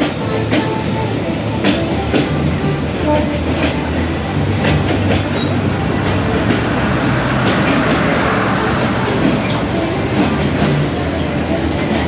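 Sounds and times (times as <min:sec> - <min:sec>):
diesel locomotive engine: 0:00.0 - 0:12.0
train wheels clattering over rail joints: 0:00.0 - 0:12.0.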